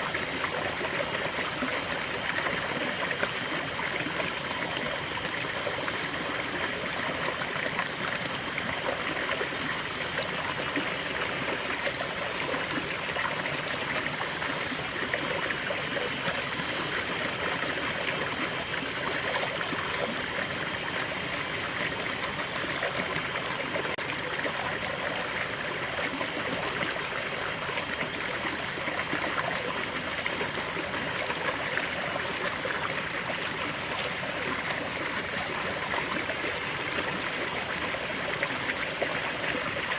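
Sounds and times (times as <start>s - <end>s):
water burbling over rocks: 0.0s - 39.9s.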